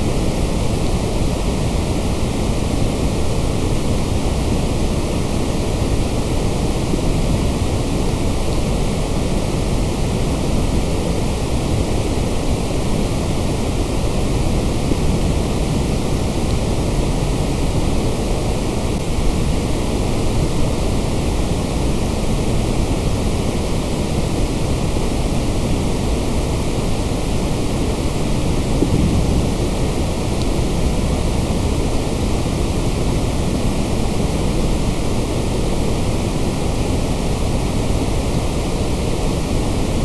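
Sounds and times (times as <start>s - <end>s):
white noise hiss: 0.0s - 40.0s
deep rumble: 28.4s - 31.7s.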